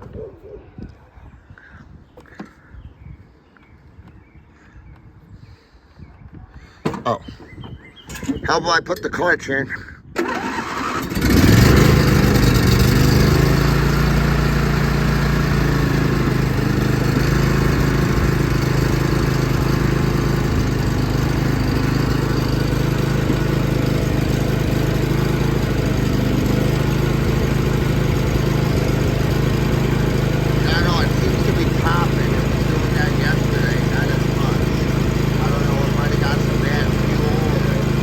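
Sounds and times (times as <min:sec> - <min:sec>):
mower engine starting and running: 0:08.1 - 0:09.3, 0:10.2 - 0:38.0.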